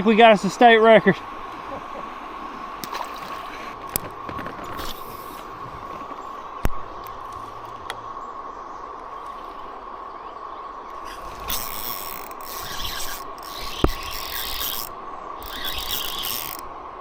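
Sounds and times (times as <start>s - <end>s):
fishing reel whirring and clicking: 10.9s - 16.7s.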